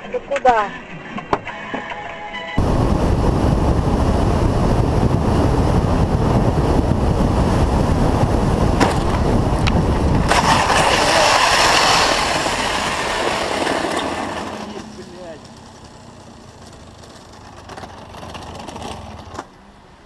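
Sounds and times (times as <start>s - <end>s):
car road and tyre noise: 0.0s - 20.0s
hissing rush: 2.6s - 16.6s.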